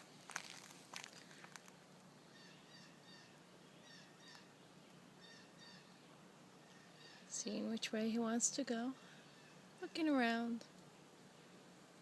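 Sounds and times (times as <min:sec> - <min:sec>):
bird chirping: 0:02.2 - 0:07.5.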